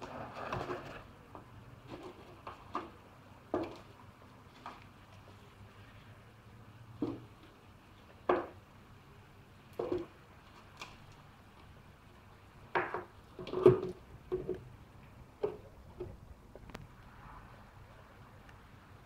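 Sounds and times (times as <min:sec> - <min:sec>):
plastic bottle parts knocking: 0:12.7 - 0:14.7.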